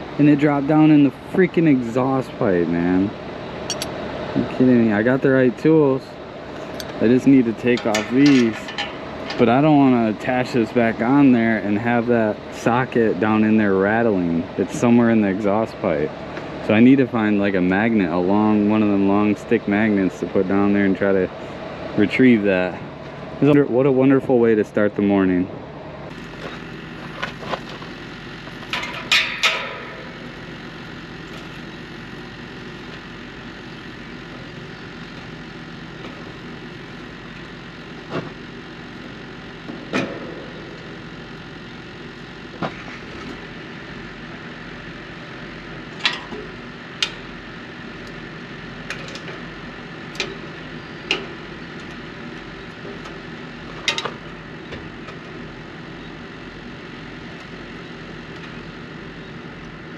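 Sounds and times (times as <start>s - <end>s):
hand tools clanking on metal: 3.7s - 3.9s, 7.6s - 9.6s, 28.7s - 30.0s
diesel engine idling: 25.6s - 59.9s.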